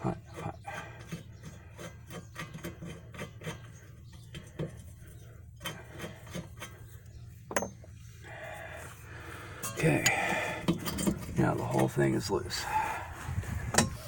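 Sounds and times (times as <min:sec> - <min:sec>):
metal scraping and clicking: 0:09.6 - 0:11.9.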